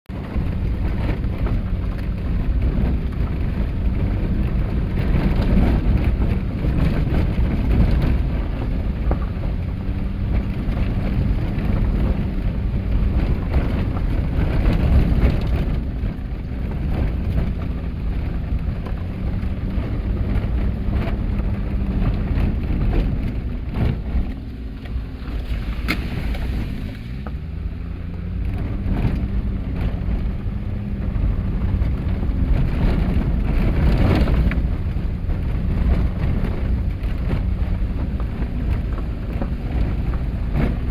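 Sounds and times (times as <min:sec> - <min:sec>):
car engine running: 0:00.1 - 0:40.9
tyres rumbling on dirt road: 0:00.1 - 0:40.9.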